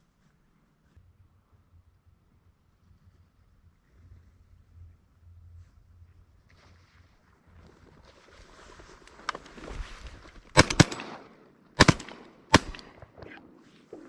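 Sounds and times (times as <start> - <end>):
shotgun shots: 10.5 - 13.6.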